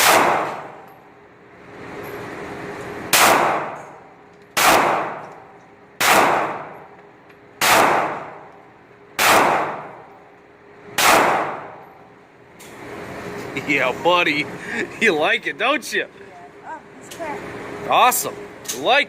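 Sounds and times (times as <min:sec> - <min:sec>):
pistol shots with echo: 0:00.0 - 0:00.9, 0:03.1 - 0:04.0, 0:04.6 - 0:05.4, 0:06.0 - 0:06.9, 0:07.6 - 0:08.5, 0:09.2 - 0:10.1, 0:11.0 - 0:11.8.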